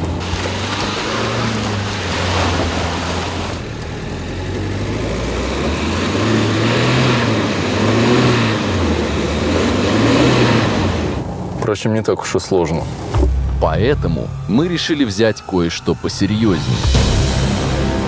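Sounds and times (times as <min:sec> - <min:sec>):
tyres churning through mud: 0:00.0 - 0:11.4
car engine revving: 0:00.0 - 0:11.6.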